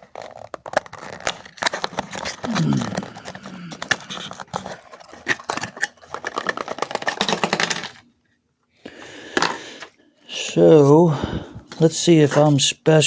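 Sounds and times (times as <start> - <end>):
hands rummaging through packaging: 0.0 - 8.1.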